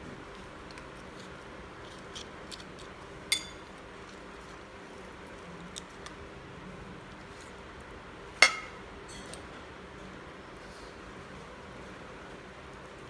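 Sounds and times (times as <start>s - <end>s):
metal utensil clinking on dish: 3.3s - 3.7s, 8.4s - 9.4s.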